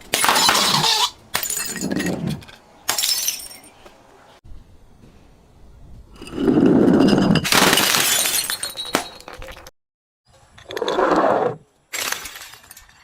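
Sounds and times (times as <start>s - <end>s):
glass bottle shattering: 0.2s - 2.1s, 2.9s - 3.7s, 7.0s - 9.7s, 11.9s - 13.0s.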